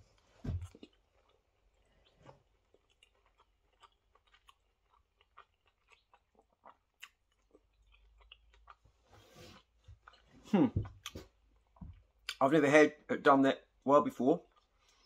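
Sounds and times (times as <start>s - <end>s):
faint chewing: 0.0s - 12.4s, 14.4s - 15.0s.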